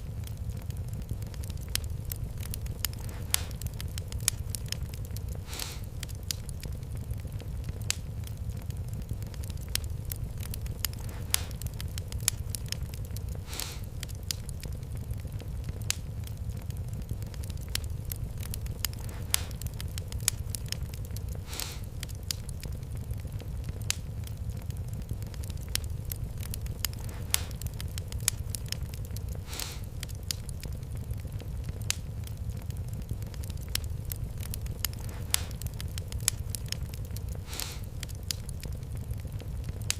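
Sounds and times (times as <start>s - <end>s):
fire hiss: 0.0s - 39.9s
wood fire crackling: 0.0s - 39.9s.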